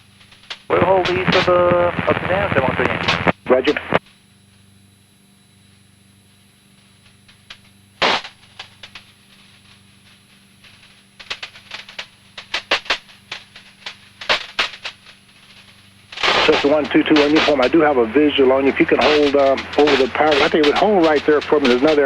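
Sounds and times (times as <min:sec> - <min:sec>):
faint steady radio hum: 0:00.6 - 0:04.0, 0:15.2 - 0:22.0
sharp radio clicks: 0:00.7 - 0:04.0, 0:16.2 - 0:22.0.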